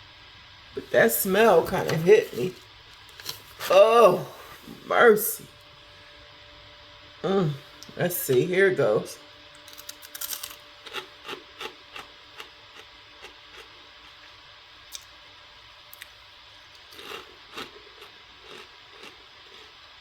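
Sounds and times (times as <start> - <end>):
chewing crunchy snack: 9.6 - 14.3, 16.8 - 20.0.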